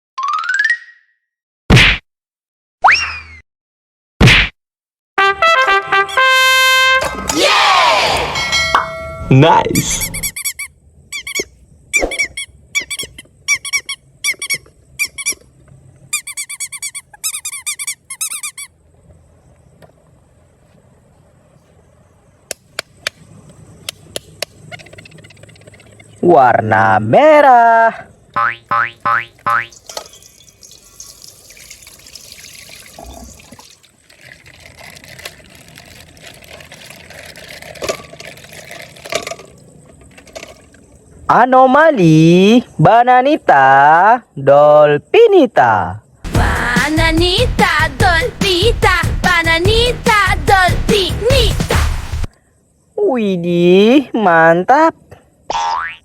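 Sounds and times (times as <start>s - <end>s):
high-pitched squeaking: 9.8s - 15.5s, 16.1s - 18.7s
water trickling from a bag: 29.7s - 41.0s.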